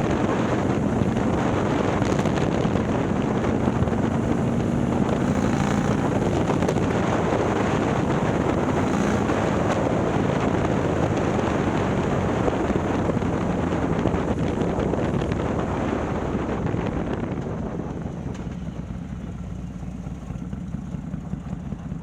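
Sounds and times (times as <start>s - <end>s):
wind noise on microphone: 0.0s - 19.2s
motorcycle engine running: 0.0s - 22.0s.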